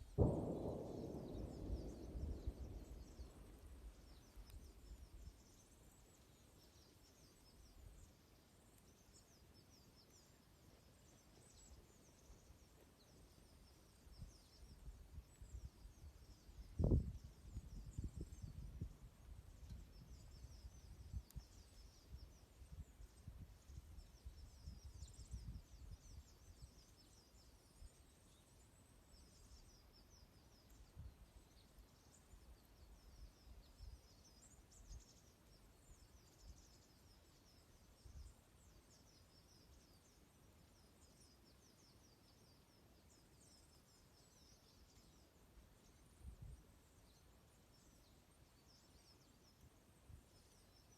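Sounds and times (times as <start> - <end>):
small birds twittering: 0.0 - 50.9
dull low bumps: 0.1 - 5.2.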